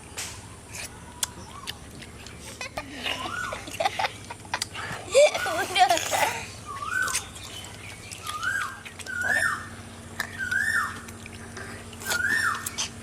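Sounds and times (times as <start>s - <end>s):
bird calling: 0.9s - 3.9s, 6.5s - 13.0s.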